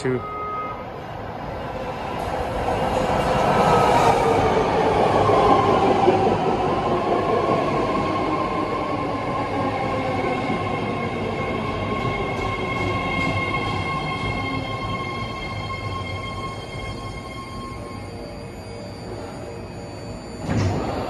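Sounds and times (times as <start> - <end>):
train wheels rumbling on rail: 1.9 - 18.0.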